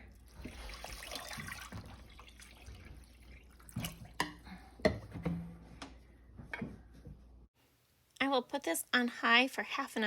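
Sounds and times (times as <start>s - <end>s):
water pouring and dripping: 0.0s - 4.3s.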